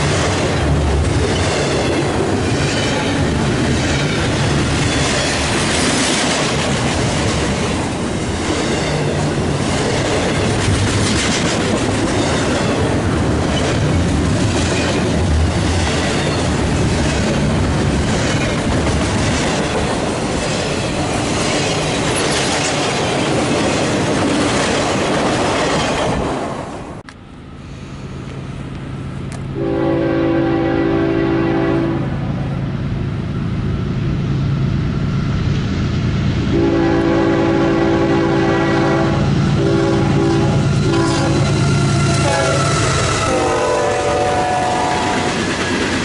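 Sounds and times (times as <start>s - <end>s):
freight train wheels on rail: 0.0s - 46.0s
train horn blast: 29.5s - 32.2s, 36.5s - 45.4s.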